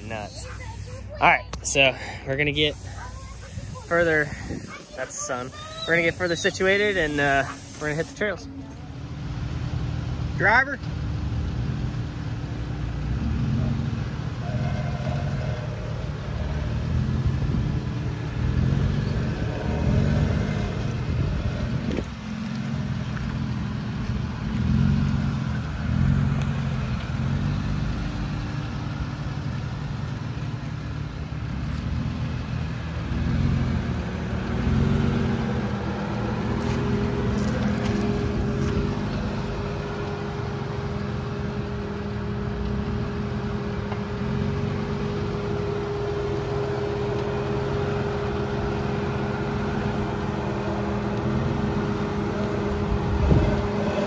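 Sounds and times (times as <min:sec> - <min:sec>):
steady whine: 0:00.0 - 0:09.7
engine running at low revs: 0:00.0 - 0:54.0.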